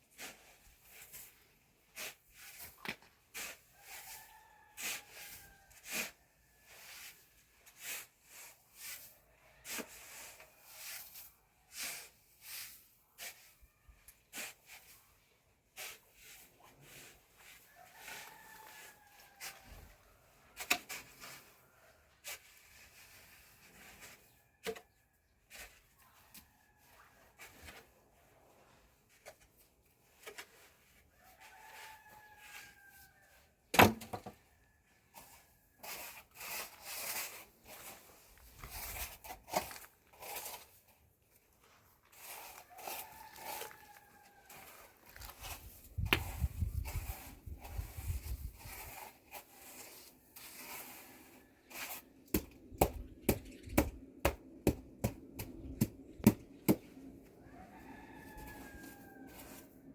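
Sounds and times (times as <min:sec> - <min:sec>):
rooster crowing: 0:17.8 - 0:19.7, 0:42.6 - 0:44.8, 0:57.4 - 0:59.8
rustling: 0:56.7 - 0:59.9.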